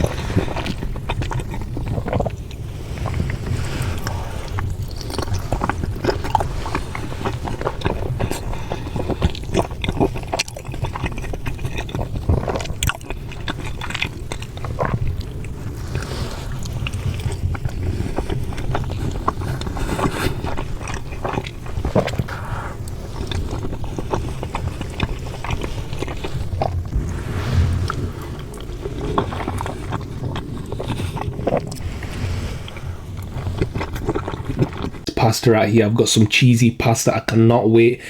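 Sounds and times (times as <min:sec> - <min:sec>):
low rumble: 0:26.7 - 0:29.9.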